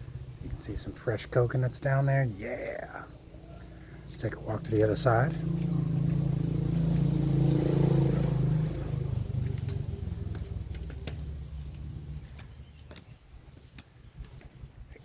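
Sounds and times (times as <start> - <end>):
engine running: 0.0 - 13.1.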